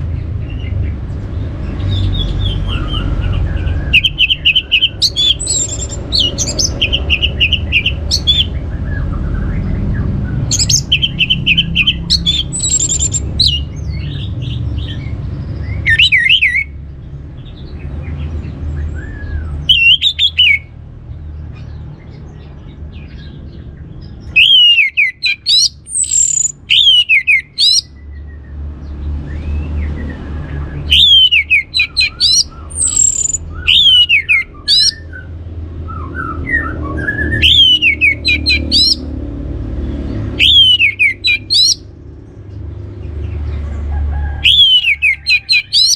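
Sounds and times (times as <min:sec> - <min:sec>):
thrush singing trills and whistles: 0:01.7 - 0:16.8, 0:18.8 - 0:20.8, 0:24.0 - 0:28.6, 0:29.3 - 0:39.1, 0:40.2 - 0:41.9, 0:44.4 - 0:45.9.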